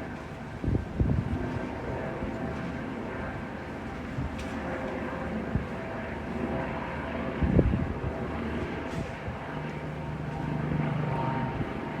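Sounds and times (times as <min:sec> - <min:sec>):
wind on microphone: 0:00.4 - 0:04.4, 0:05.4 - 0:05.8, 0:07.2 - 0:09.6.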